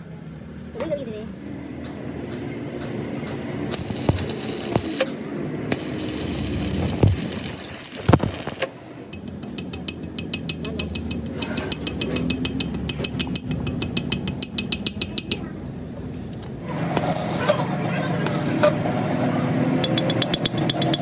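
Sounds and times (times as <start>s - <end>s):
workshop noise: 0.0s - 21.0s
rapid mechanical clicking: 2.3s - 15.4s, 19.8s - 21.0s
sharp knocks: 19.8s - 21.0s.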